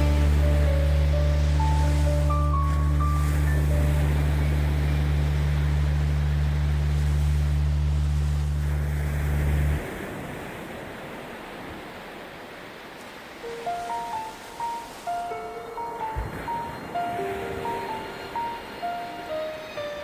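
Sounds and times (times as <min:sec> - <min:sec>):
deep steady hum: 0:00.0 - 0:09.8
ocean waves surf: 0:00.0 - 0:20.0.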